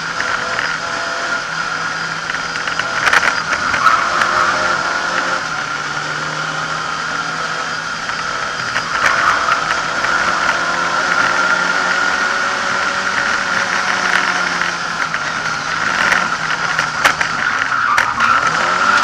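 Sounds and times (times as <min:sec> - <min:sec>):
car engine under load: 0:00.0 - 0:19.0
car body rattles: 0:08.0 - 0:19.0.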